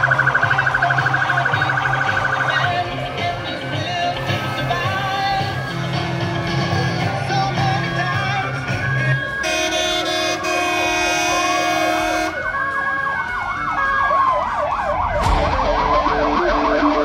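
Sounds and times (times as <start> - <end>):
fast siren yelp: 0.0 - 2.9, 8.2 - 17.0
fire engine sirens wailing: 0.0 - 17.0
steady horn blast: 4.0 - 7.2, 9.4 - 12.5.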